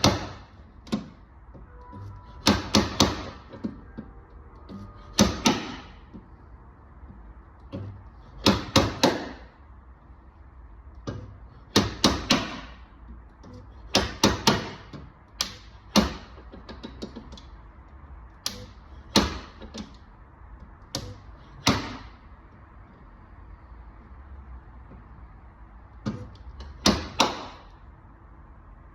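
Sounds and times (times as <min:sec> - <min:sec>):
slide hammer knocking: 0:00.0 - 0:01.2, 0:01.8 - 0:06.3, 0:07.0 - 0:09.5, 0:11.0 - 0:12.8, 0:13.9 - 0:17.3, 0:18.5 - 0:19.9, 0:20.9 - 0:22.1, 0:26.0 - 0:27.7.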